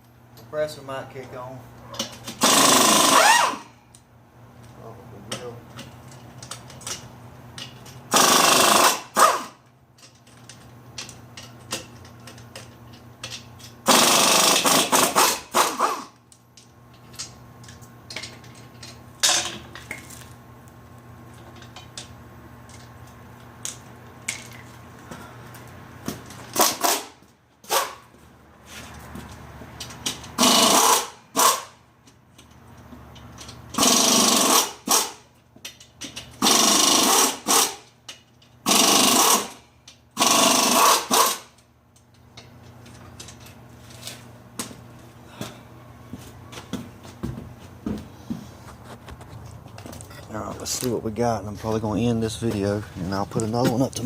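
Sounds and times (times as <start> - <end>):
air impact wrench hammering: 2.0 - 3.7, 8.1 - 9.6, 13.8 - 16.2, 26.1 - 28.1, 29.8 - 31.8, 33.7 - 35.3, 36.0 - 37.9, 38.6 - 41.6.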